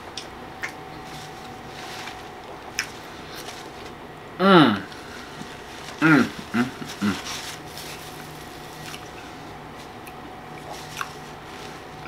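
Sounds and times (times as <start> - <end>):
steady low hum: 0.0 - 12.0
wet chewing sounds: 0.1 - 3.7, 7.8 - 12.0.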